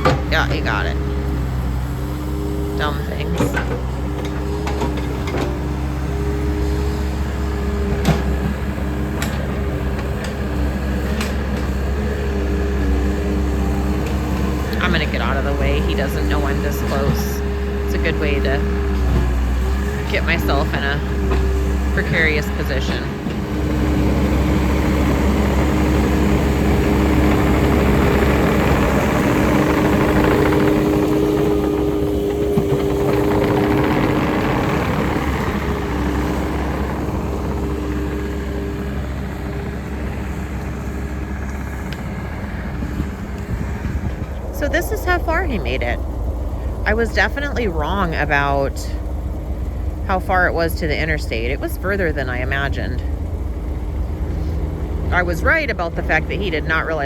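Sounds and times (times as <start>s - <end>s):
diesel engine running under load: 0.0s - 57.0s
steady whine: 13.6s - 57.0s.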